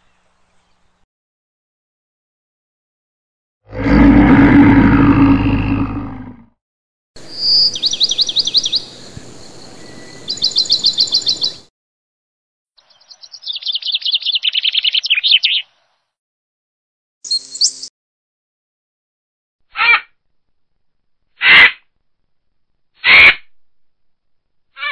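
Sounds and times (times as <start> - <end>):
small birds chirping and trilling: 7.2 - 11.7, 12.8 - 16.0, 17.2 - 17.9.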